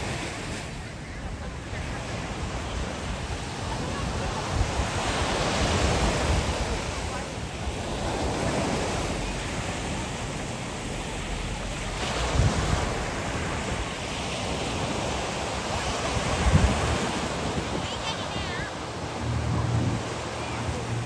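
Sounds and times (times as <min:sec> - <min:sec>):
ocean surf washing on beach: 0:00.0 - 0:21.0
wind gusting on microphone: 0:11.8 - 0:21.0.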